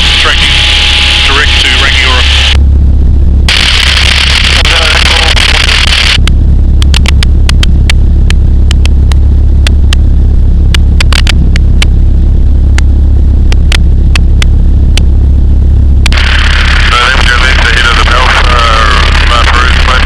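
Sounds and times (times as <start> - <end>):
aircraft engine droning: 0.0 - 20.0
sharp clicks: 3.5 - 10.0, 10.7 - 11.9.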